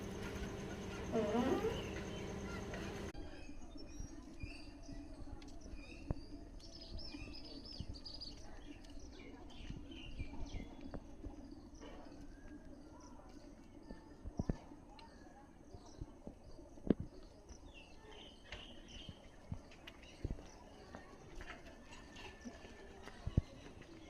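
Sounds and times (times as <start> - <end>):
faint steady hum: 0.0 - 3.2
small birds chirping: 0.0 - 24.0.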